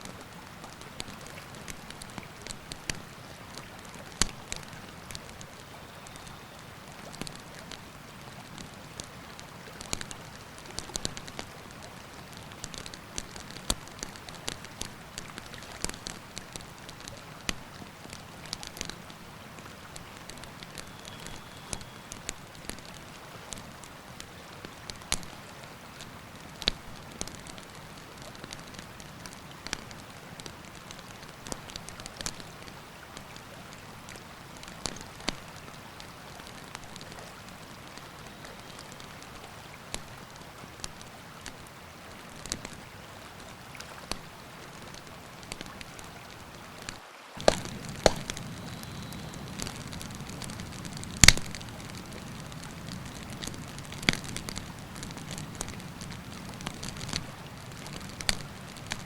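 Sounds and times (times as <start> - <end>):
campfire crackling and popping: 0.6 - 59.0
river water rushing: 32.8 - 59.0.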